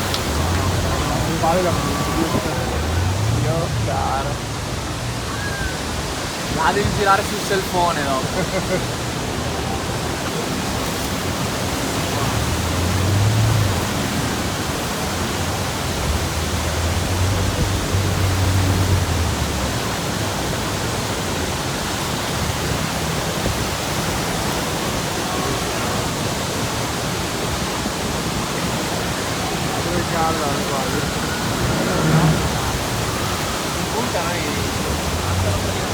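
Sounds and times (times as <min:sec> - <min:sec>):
roar of waterfall: 0:00.0 - 0:35.9
low rumble: 0:30.8 - 0:33.6.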